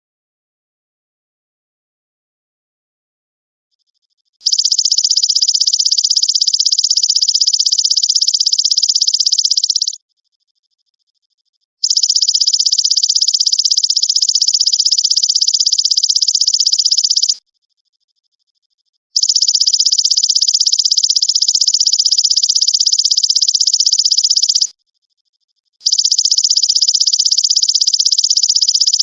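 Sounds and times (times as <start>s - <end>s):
grasshopper buzzing trill: 11.8s - 17.4s, 19.2s - 24.7s.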